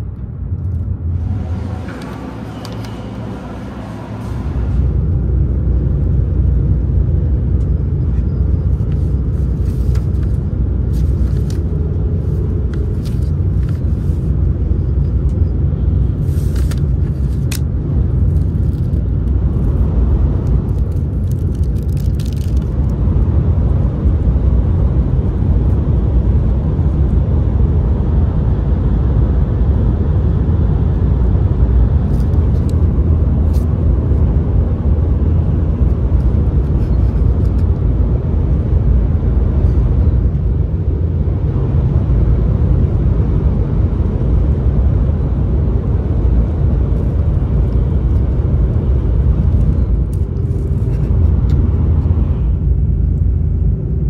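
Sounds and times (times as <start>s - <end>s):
train cabin low rumble: 0.0s - 54.0s
paper crackling: 8.7s - 14.3s, 16.2s - 17.6s, 20.4s - 22.9s.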